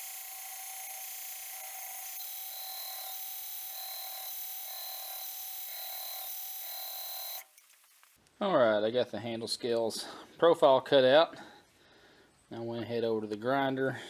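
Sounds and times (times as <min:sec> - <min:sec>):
pulsing tone: 0:00.0 - 0:07.4.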